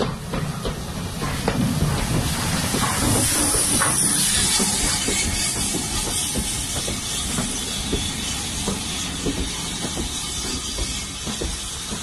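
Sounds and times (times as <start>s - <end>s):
train coaches rolling past: 0.0s - 12.0s
steady hiss: 0.4s - 12.0s.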